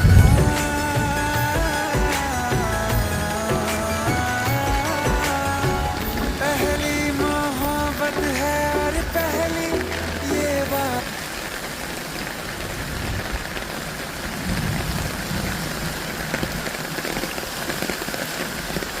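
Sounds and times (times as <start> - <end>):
song music: 0.0 - 11.3
steady rain falling: 0.0 - 19.0.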